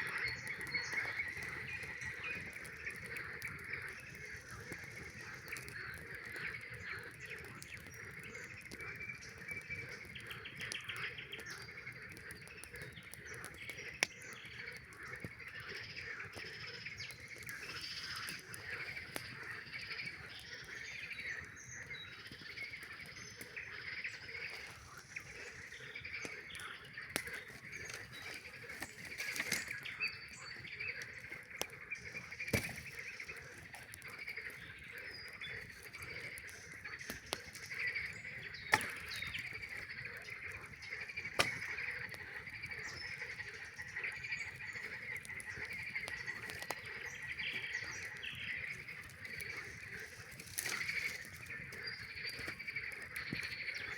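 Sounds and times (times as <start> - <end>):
campfire crackling and popping: 0.0 - 53.9
frogs calling: 0.0 - 53.9.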